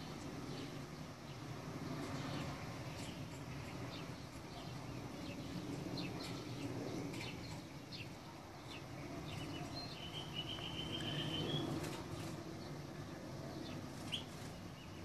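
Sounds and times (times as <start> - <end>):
small birds chirping: 0.0 - 15.0
bird trilling: 10.0 - 11.8.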